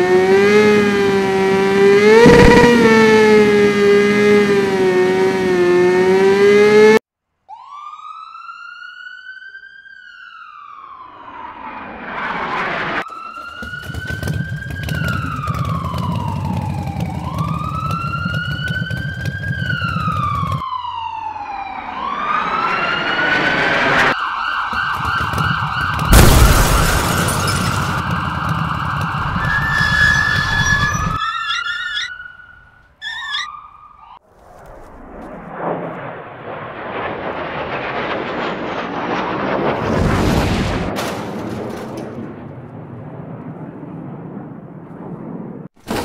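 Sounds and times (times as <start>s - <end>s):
police siren wailing: 0.0s - 34.2s.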